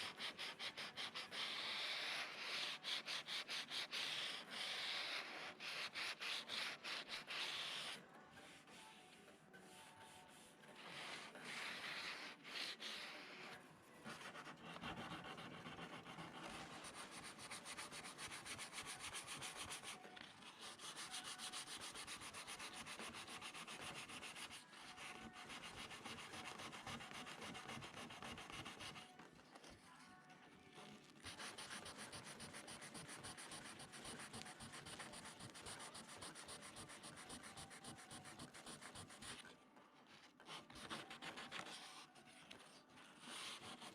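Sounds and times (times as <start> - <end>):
sandpaper scraping: 0.0 - 8.9, 14.2 - 29.0.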